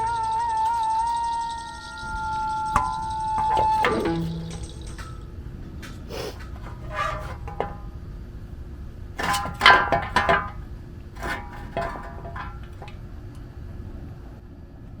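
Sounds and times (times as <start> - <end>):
metal clinks and clanks ringing: 0.0 - 5.4.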